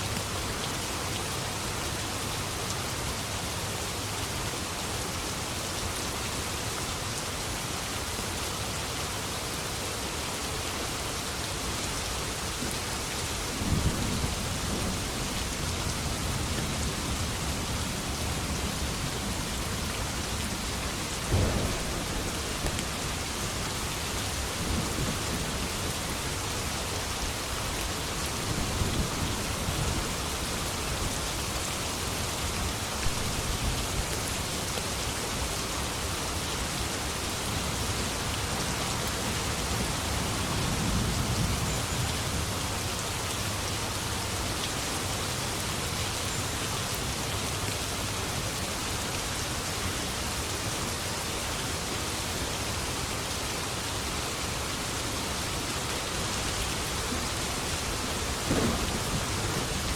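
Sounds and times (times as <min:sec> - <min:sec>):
steady rain falling: 0:00.0 - 0:59.9
thunder rumbling: 0:16.7 - 0:26.1, 0:56.8 - 0:59.9.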